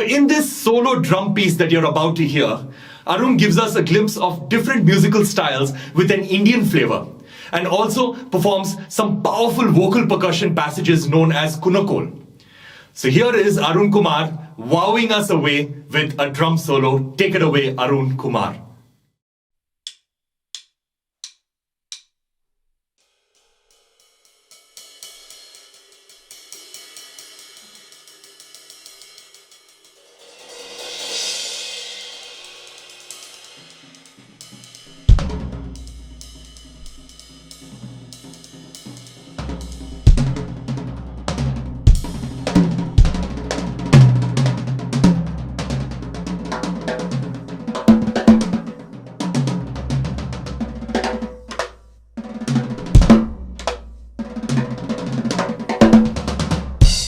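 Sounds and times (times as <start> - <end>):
cymbal and hi-hat shimmer: 23.3 - 40.2
cymbal roll: 23.7 - 41.0, 56.8 - 57.0
drum kit groove: 24.9 - 57.0
bass drum and cymbal hit: 29.9 - 57.0.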